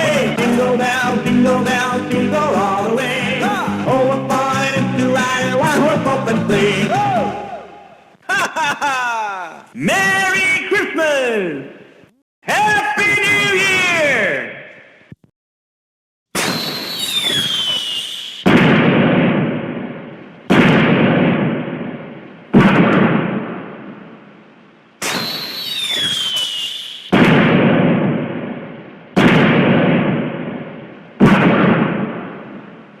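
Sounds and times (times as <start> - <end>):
whistling firework rocket: 16.4 - 18.8, 25.0 - 27.6
firework booms: 16.4 - 24.3, 25.0 - 33.0.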